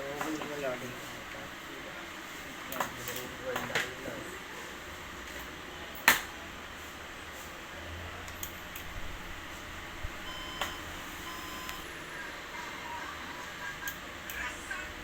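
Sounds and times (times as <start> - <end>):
short electronic beeps: 10.3 - 12.0.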